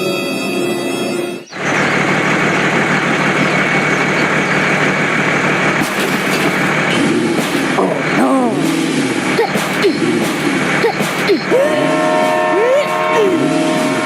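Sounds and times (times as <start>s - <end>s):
music: 0.0s - 1.5s
small tractor engine running: 1.4s - 14.0s.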